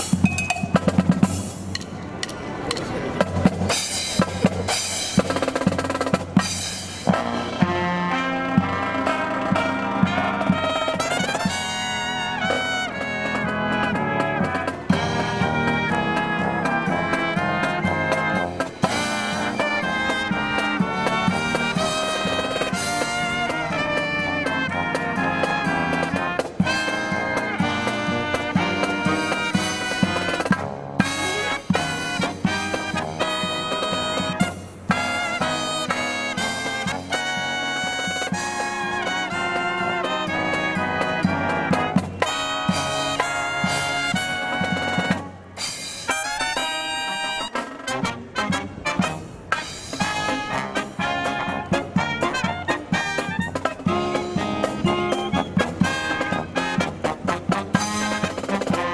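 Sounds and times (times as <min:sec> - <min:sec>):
trumpets and trombones: 0:00.0 - 0:01.9, 0:02.7 - 0:58.9
brass marching band playing: 0:00.0 - 0:58.9
drums: 0:00.0 - 0:58.9.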